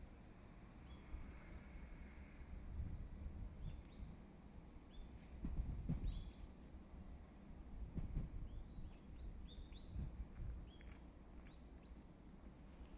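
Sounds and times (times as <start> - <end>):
small birds chirping: 8.5 - 12.1.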